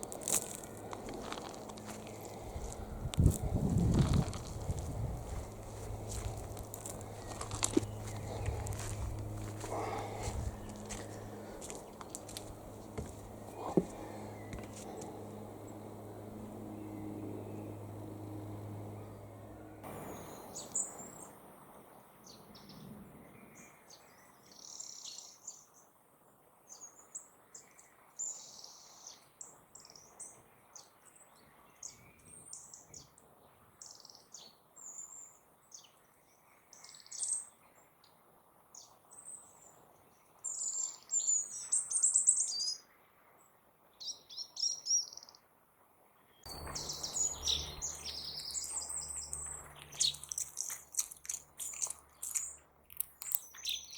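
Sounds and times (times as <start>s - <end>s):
steady low hum: 0.0s - 23.6s, 46.5s - 52.6s
small birds chirping: 0.0s - 25.8s, 26.7s - 37.6s, 38.8s - 42.9s, 44.0s - 45.5s, 46.3s - 53.9s.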